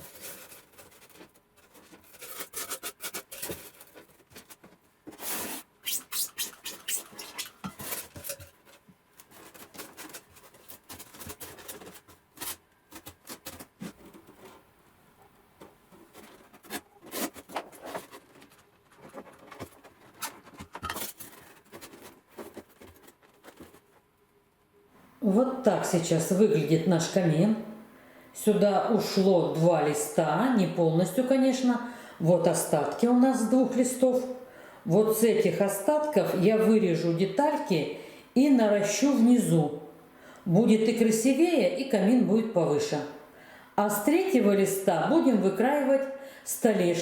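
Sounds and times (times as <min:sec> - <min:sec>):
foam board rubbing and scraping: 0:00.0 - 0:08.3, 0:16.0 - 0:24.0.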